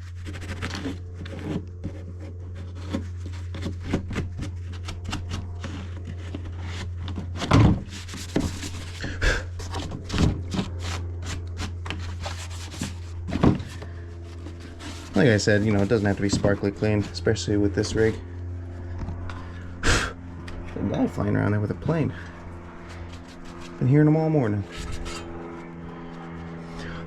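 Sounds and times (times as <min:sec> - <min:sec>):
rubbing against fuel tank: 0:00.0 - 0:19.5, 0:22.5 - 0:23.8, 0:24.6 - 0:27.0
steady low drone: 0:00.0 - 0:27.0.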